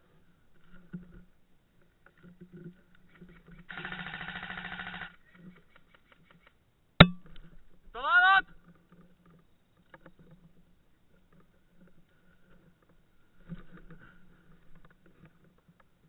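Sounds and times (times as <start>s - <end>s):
airsoft gun full-auto burst: 3.7s - 5.1s.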